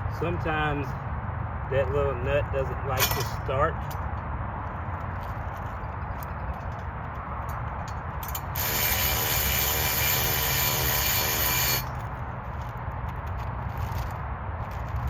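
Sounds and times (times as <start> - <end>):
power tool buzzing: 8.6 - 11.9.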